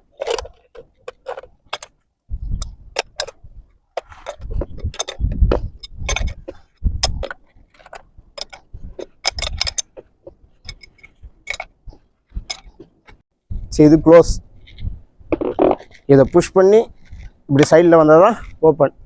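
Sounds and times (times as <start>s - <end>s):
metal clicks and clinks: 4.2s - 13.2s.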